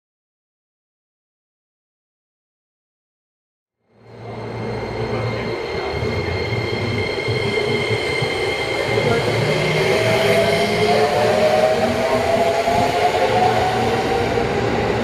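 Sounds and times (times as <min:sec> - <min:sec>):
electric train rumbling and whining: 0:03.8 - 0:15.0.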